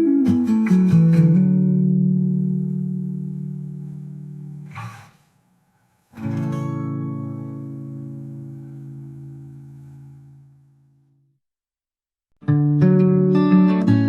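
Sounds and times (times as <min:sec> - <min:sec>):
fingerpicked guitar: 0:00.0 - 0:05.2, 0:06.1 - 0:11.0, 0:12.4 - 0:14.0
short hiss: 0:04.7 - 0:05.4.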